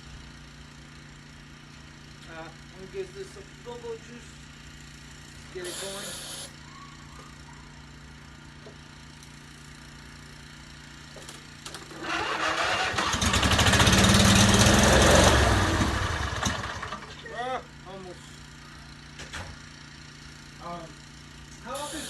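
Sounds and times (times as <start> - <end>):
lawn tractor engine cranking: 11.3 - 17.2.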